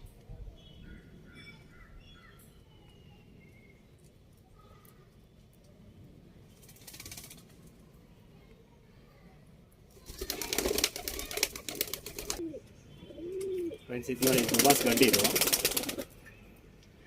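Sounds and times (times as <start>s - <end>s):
pigeon wings flapping: 6.6s - 7.6s, 10.0s - 12.5s, 14.2s - 16.2s.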